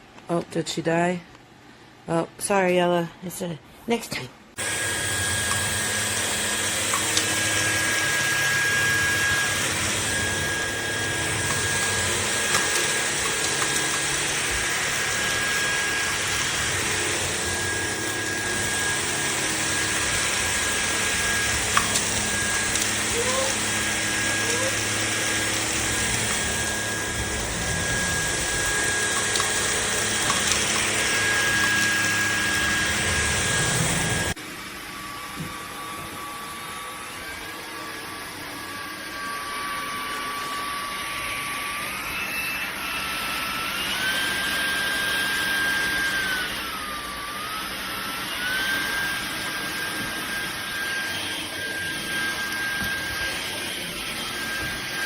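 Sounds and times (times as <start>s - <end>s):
vacuum cleaner motor whine: 4.6s - 55.0s
vacuum suction rushing: 8.5s - 34.4s.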